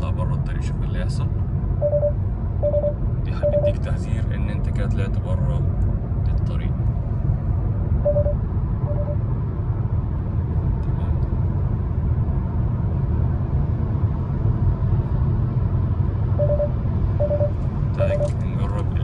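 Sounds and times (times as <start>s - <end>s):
road and engine rumble in car: 0.0s - 19.0s
lane warning short beeps: 1.8s - 3.8s, 8.0s - 9.2s, 16.4s - 18.4s.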